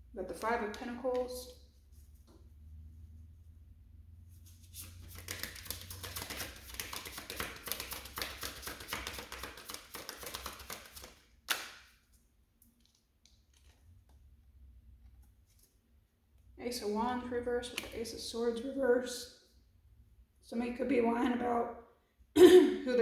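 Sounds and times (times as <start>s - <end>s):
cards being shuffled: 4.6s - 12.2s
cards snapping: 4.8s - 11.9s.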